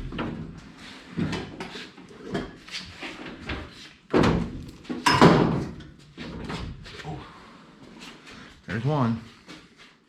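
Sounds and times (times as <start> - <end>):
clunk and clatter: 3.3 - 6.8.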